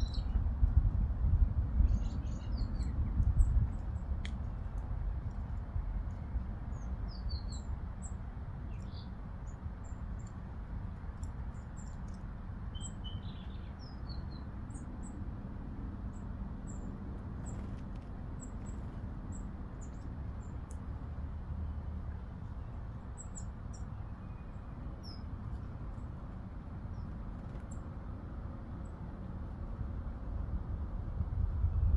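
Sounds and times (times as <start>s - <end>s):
songbirds high thin chirps: 0.0s - 0.4s, 1.8s - 15.2s, 16.1s - 21.0s, 22.3s - 28.0s
steady low rumble: 28.9s - 31.9s.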